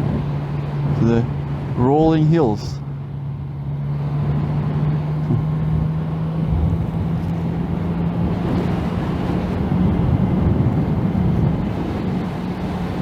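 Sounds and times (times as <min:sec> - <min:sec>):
wind on microphone: 0:00.0 - 0:01.8, 0:03.0 - 0:13.0
motorcycle engine drone: 0:02.8 - 0:13.0.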